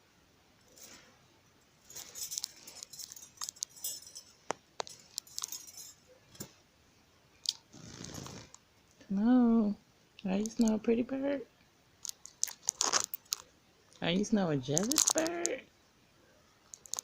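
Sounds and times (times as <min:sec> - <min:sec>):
soft rustling: 0:00.6 - 0:01.2, 0:01.8 - 0:06.6.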